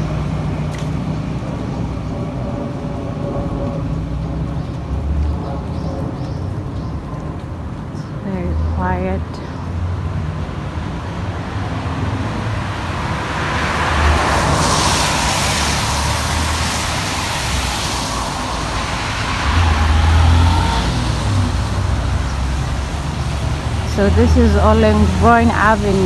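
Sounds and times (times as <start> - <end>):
traffic rumble: 0.0 - 26.0
car tyres hissing on wet road: 9.8 - 25.2.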